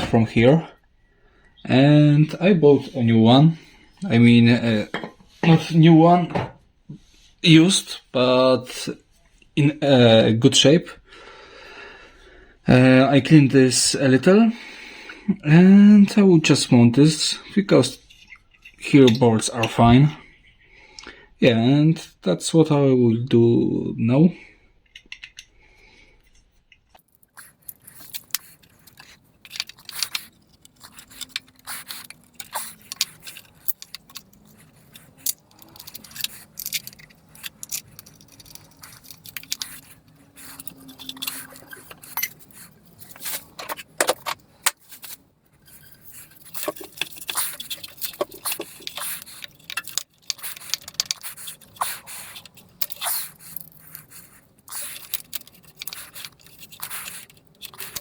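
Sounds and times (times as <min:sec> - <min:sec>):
metal tools clinking and scraping: 0:26.2 - 0:58.0.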